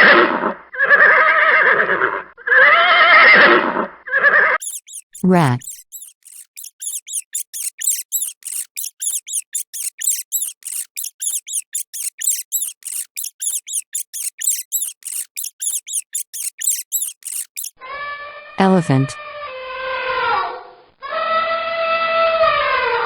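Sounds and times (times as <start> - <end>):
rat squeaking: 4.6 - 17.8.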